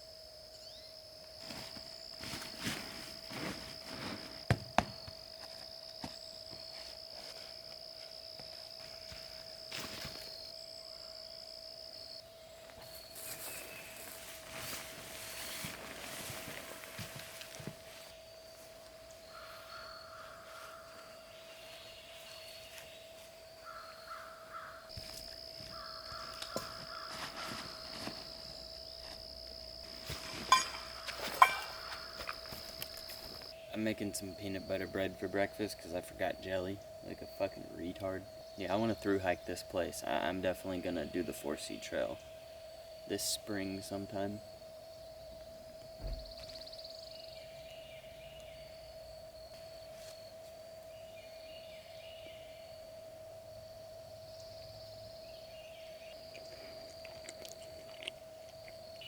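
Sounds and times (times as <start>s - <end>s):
insects calling: 0.0s - 59.0s
rustling handling noises: 1.4s - 4.4s, 12.8s - 18.8s, 25.0s - 29.2s
bird calling: 19.3s - 24.9s, 25.7s - 28.0s, 30.5s - 33.8s.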